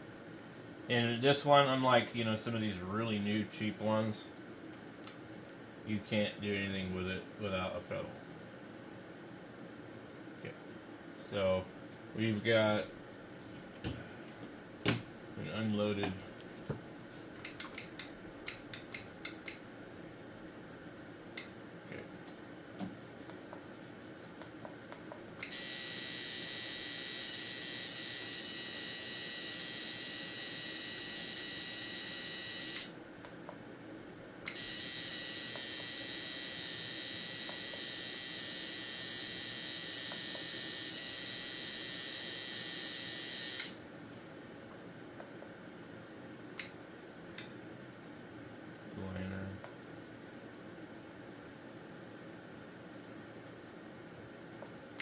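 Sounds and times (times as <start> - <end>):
tattoo machine buzzing: 25.4 - 33.0, 34.5 - 43.8.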